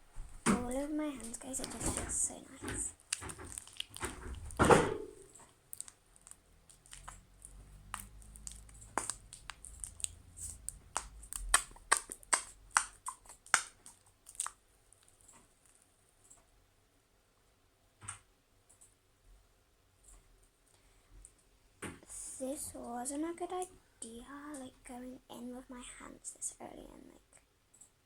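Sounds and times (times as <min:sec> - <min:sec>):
slime squishing: 0:00.4 - 0:15.9
sticky slime clicks and pops: 0:03.0 - 0:04.6, 0:05.7 - 0:14.6.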